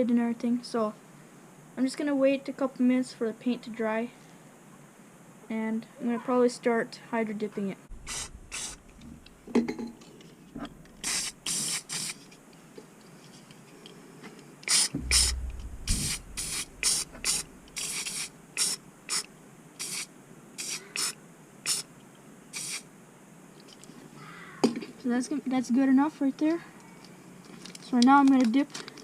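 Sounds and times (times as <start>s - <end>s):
low rumble: 7.9s - 9.5s, 10.6s - 11.0s, 15.0s - 17.9s
spray can hissing: 8.0s - 8.9s, 11.0s - 12.2s, 14.7s - 15.3s, 16.4s - 21.8s, 22.6s - 22.8s.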